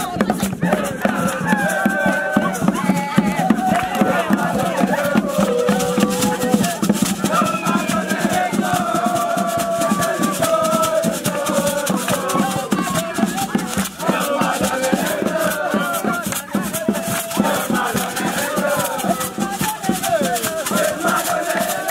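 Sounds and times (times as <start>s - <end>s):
fast percussive rhythm: 0.0s - 21.9s
voices singing together: 0.0s - 21.9s.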